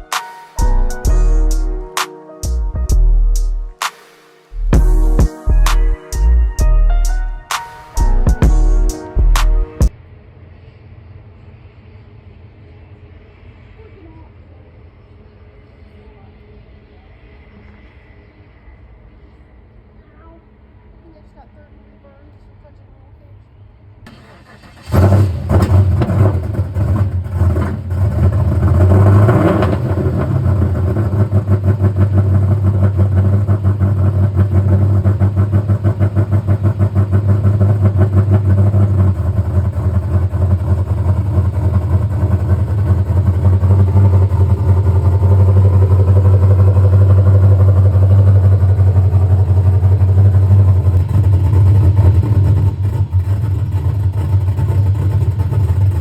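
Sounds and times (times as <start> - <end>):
car engine revving and idling: 24.1 - 56.0.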